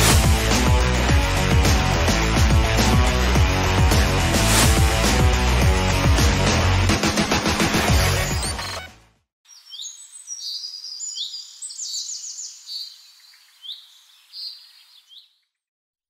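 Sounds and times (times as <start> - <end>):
birds chirping: 9.5 - 15.7.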